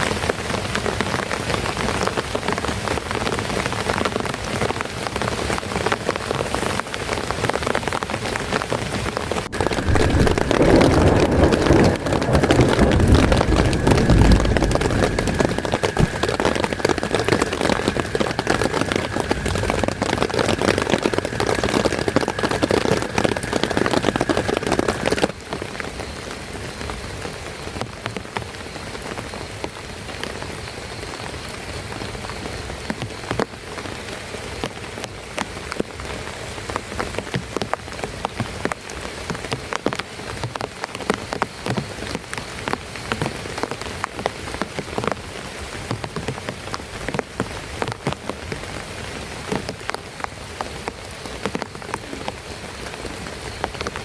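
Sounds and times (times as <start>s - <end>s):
heavy rain falling: 0.1s - 25.4s.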